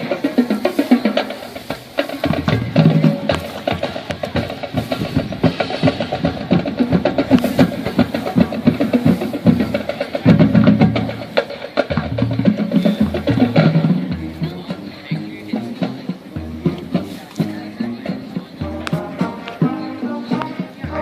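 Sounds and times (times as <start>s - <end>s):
marching band playing: 0.0s - 21.0s
rapid drum strikes: 0.0s - 21.0s.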